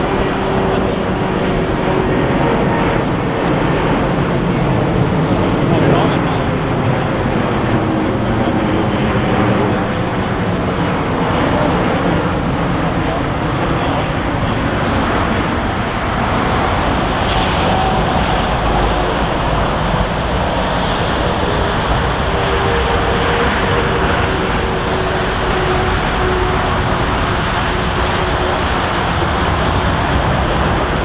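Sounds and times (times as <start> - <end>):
jet engines rushing: 0.0 - 31.0
faint steady tones: 9.5 - 31.0.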